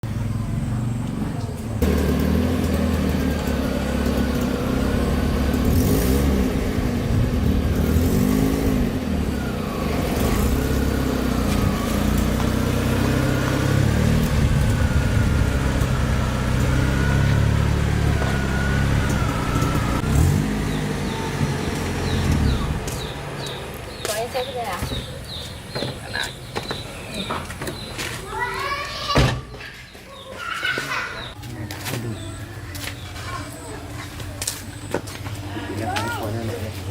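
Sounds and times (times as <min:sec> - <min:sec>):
vehicle engine running: 0:00.0 - 0:28.4.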